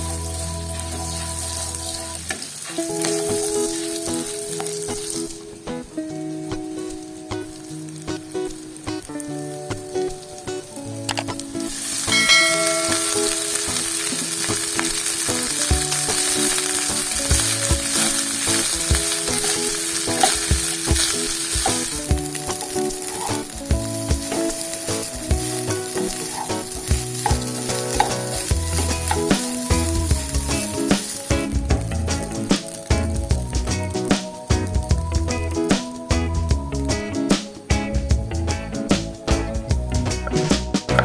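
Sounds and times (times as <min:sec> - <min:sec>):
food sizzling in hot oil: 0:00.0 - 0:37.9
spatula scraping pan: 0:16.2 - 0:31.2.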